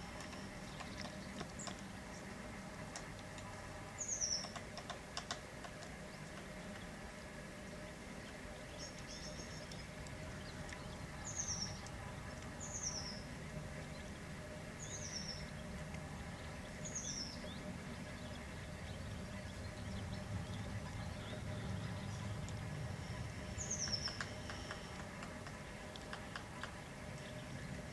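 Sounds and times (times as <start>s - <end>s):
low steady hum: 0.0s - 27.9s
small bird calling: 23.4s - 25.0s.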